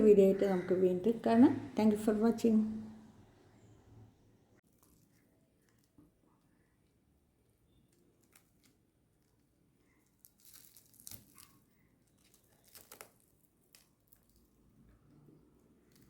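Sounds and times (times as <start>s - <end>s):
crisp flatbread crackling when torn: 4.6s - 16.0s.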